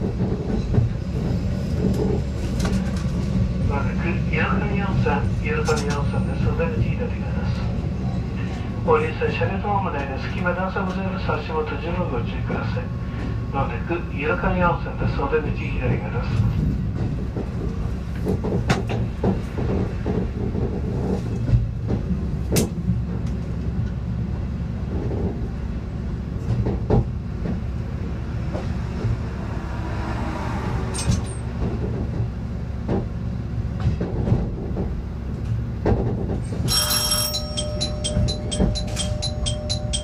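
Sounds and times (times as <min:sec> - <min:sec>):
diesel railcar engine and wheel rumble: 0:00.0 - 0:40.0
level crossing warning bell: 0:36.7 - 0:40.0.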